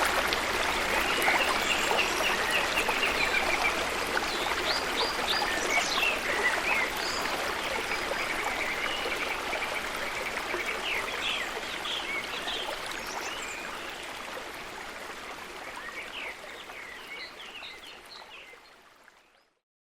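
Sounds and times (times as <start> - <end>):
falling water rushing: 0.0 - 13.6.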